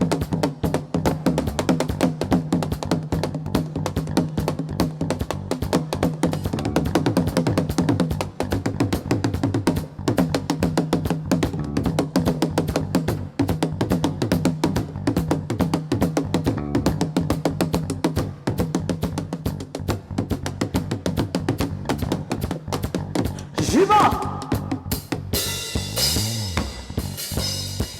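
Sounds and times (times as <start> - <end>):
bass line: 0.0 - 27.9
hand percussion and drums: 0.0 - 27.9
guitar: 6.1 - 27.9.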